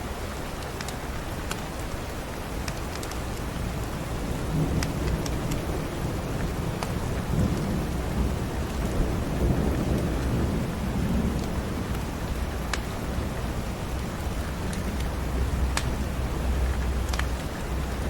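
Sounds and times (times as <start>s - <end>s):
steady rain: 0.0s - 18.0s
low rumbling thunder: 4.2s - 17.0s.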